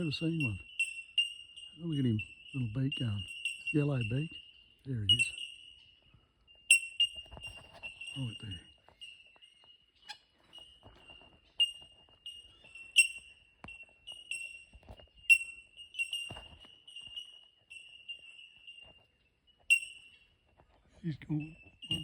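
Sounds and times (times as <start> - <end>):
bell-like bird calls: 0.0 - 22.0.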